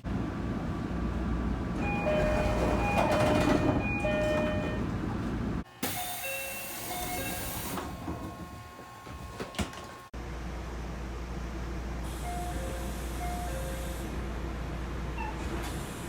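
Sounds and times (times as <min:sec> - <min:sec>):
train doors closing: 0:00.0 - 0:10.1
train carriage hum: 0:00.0 - 0:16.0
door chime tones: 0:01.8 - 0:05.0.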